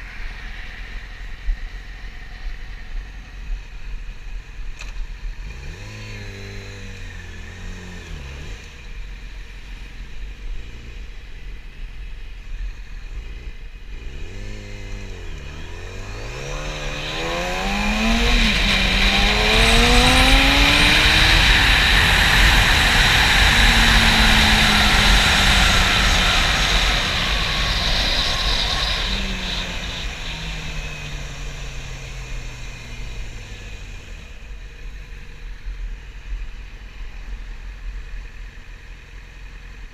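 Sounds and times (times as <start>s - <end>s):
motorcycle engine accelerating: 0.0s - 39.9s
wind noise on microphone: 16.5s - 31.6s.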